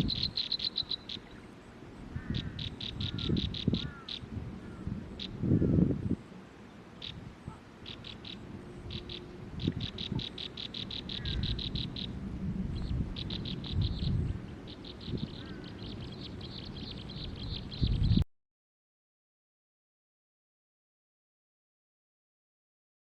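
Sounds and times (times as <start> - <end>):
small bird chirping: 0.0 - 1.6, 2.2 - 5.4, 7.0 - 12.2, 12.8 - 18.2
low rumbling noise: 7.2 - 18.2.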